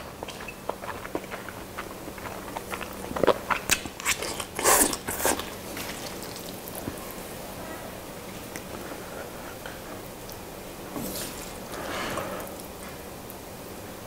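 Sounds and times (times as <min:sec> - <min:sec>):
person chewing crunchy food: 0:00.0 - 0:07.0.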